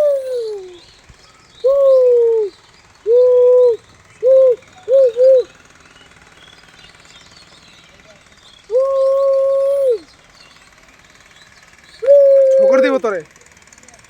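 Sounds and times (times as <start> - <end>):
bird hooting: 0.0 - 6.2, 8.6 - 10.3, 12.0 - 13.2.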